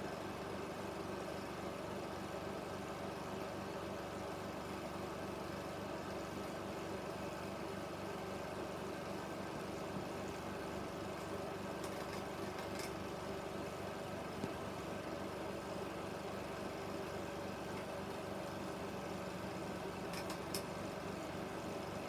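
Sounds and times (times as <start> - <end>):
film projector running: 4.6 - 22.0.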